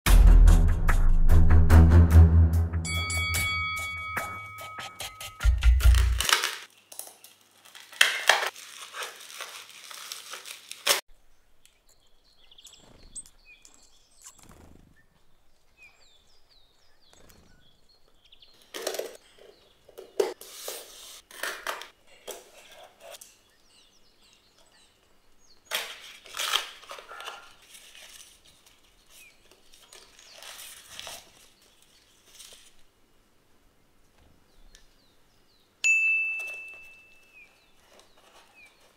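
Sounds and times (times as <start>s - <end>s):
foil crinkling: 5.8s - 11.0s, 25.7s - 32.9s, 37.4s - 38.9s
cardboard tearing: 5.9s - 6.7s, 7.4s - 11.0s, 25.7s - 28.8s, 29.6s - 32.8s
plastic wrap crinkling: 5.9s - 11.1s, 25.7s - 32.9s
utility knife slicing tape: 25.7s - 27.0s.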